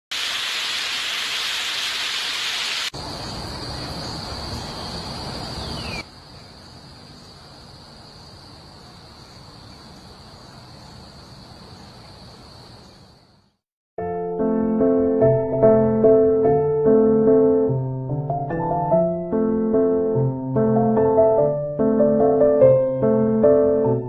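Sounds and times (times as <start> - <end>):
steady hissing noise: 0.1 - 12.4.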